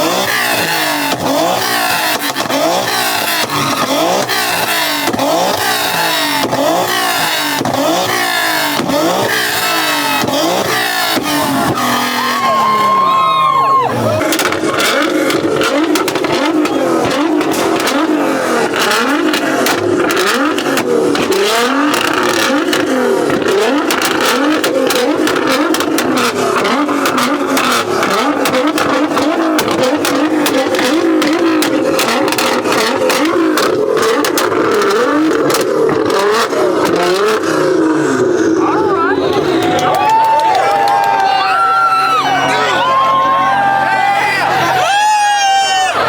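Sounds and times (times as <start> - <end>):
exhaust pops and bangs: 0.0 - 12.2, 14.2 - 38.2
car engine revving on limiter: 0.0 - 41.0.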